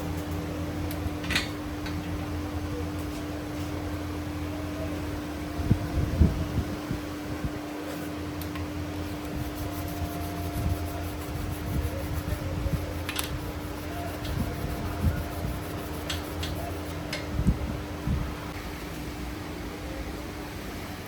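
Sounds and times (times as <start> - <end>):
electric motor humming: 9.2 - 17.0.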